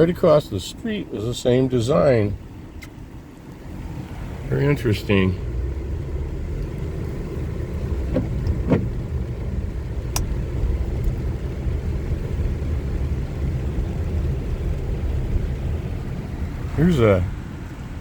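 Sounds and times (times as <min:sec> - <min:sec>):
car interior rumble: 0:00.0 - 0:18.0
sharp click: 0:10.1 - 0:10.3.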